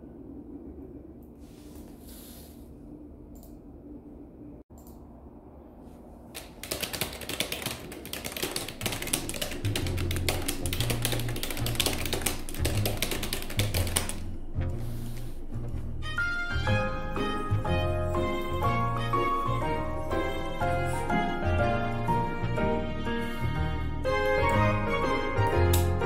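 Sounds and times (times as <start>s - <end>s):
rapid clicks: 6.4s - 14.3s.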